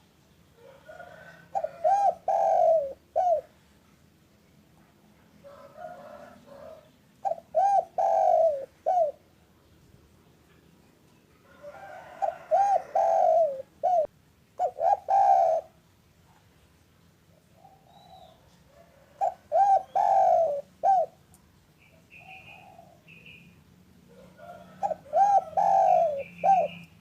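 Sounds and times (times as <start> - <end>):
dove cooing: 0.6 - 3.6, 5.5 - 9.3, 11.5 - 15.8, 17.5 - 21.2, 22.1 - 23.4, 24.1 - 26.9
faint bird chirps: 17.6 - 23.6.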